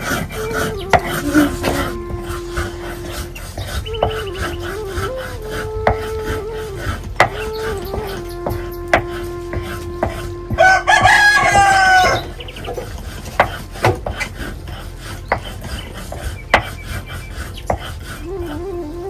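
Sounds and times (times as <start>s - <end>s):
steady low tone: 0.0s - 19.0s
rooster crowing: 9.6s - 12.4s.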